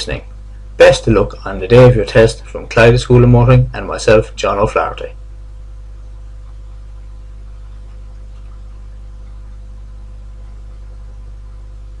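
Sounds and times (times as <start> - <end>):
steady low hum: 0.0 - 12.0
faint steady tone: 5.2 - 12.0.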